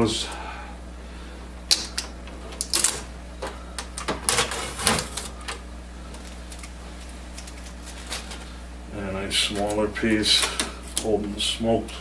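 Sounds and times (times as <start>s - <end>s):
packing tape peeling off plastic: 1.7s - 3.1s.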